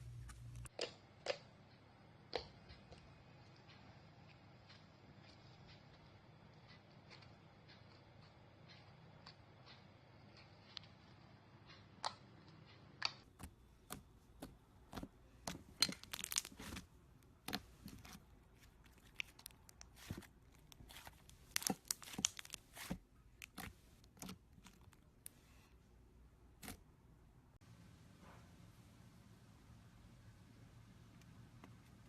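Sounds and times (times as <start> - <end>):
slime popping and crackling: 13.9 - 16.8, 17.4 - 25.0.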